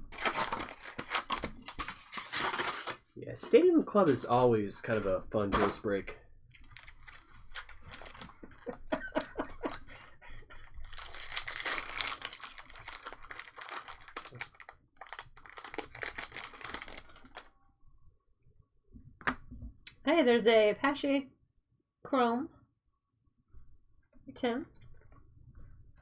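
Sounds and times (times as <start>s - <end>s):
wrappers crinkling and tearing: 0.0s - 3.1s, 6.6s - 8.9s, 9.6s - 17.5s.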